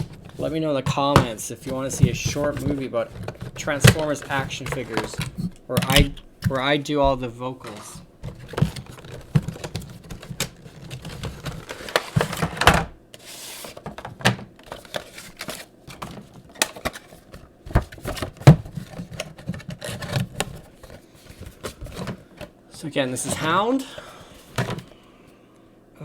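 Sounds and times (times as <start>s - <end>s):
crinkly packaging rustle: 0.0s - 6.7s, 7.6s - 12.6s, 13.2s - 25.0s
packaging clicks and taps: 1.1s - 6.6s.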